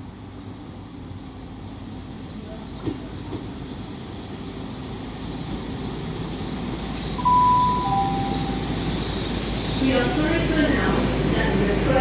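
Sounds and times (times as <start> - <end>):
train rumble: 0.0 - 12.0
two-tone public address chime: 7.2 - 8.6.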